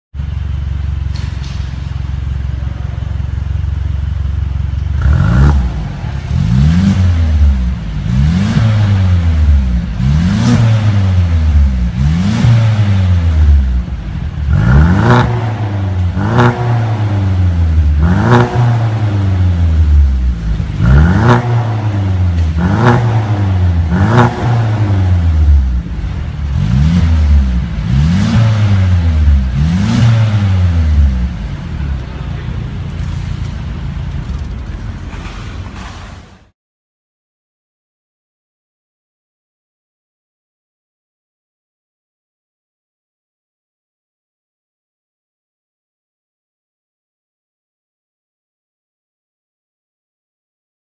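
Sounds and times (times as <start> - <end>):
car engine idling and revving: 0.2 - 36.5.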